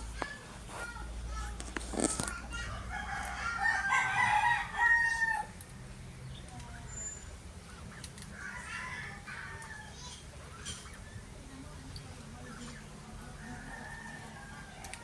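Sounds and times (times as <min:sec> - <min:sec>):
rooster crowing: 0:02.8 - 0:05.5.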